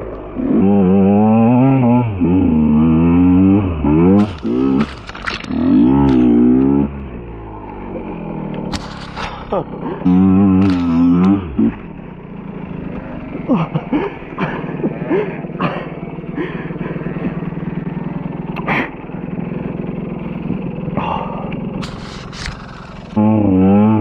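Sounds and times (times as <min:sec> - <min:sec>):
two-stroke engine idling: 0:00.0 - 0:24.0
short squeals: 0:21.8 - 0:23.2.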